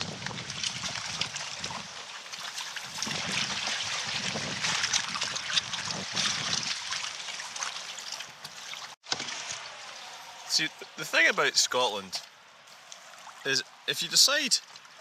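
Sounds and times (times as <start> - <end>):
hailstones hitting water and canoe: 0.0 - 10.5
running water: 0.0 - 15.0.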